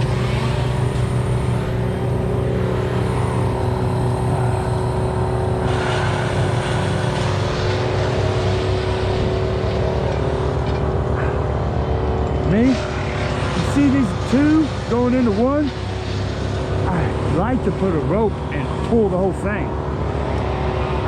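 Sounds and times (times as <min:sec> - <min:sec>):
large engine droning: 0:00.0 - 0:21.0.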